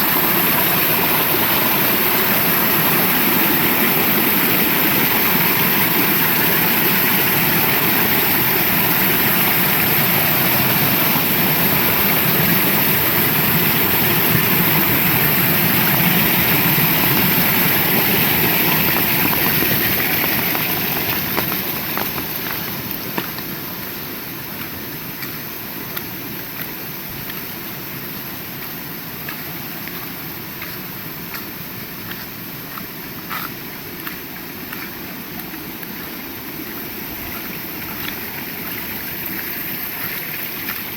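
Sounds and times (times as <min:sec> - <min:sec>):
heavy rain falling: 0:00.0 - 0:24.1
sharp water drips: 0:14.3 - 0:23.6.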